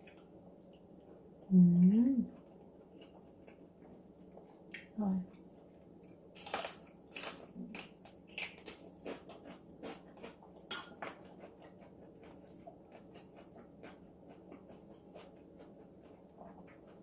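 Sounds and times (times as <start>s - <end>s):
chewing crunchy vegetables: 2.3s - 17.0s
dishes clinking: 10.6s - 11.2s.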